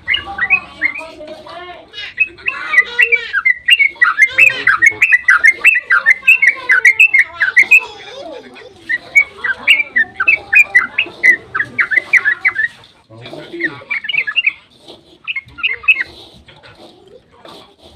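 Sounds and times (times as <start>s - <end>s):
bird chattering song: 0.0s - 17.0s.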